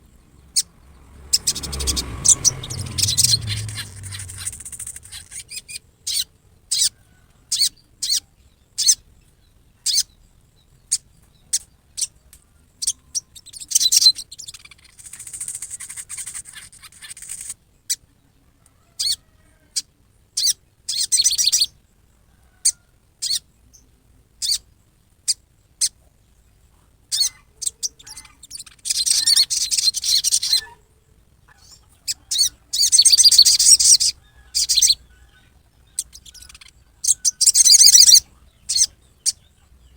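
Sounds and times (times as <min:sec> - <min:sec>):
bird giving harsh calls: 0:00.5 - 0:06.9, 0:27.1 - 0:30.8, 0:36.0 - 0:39.4.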